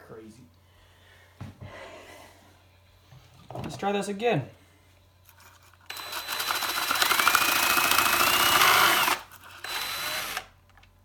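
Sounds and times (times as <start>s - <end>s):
electric drill motor whine: 5.9s - 10.5s.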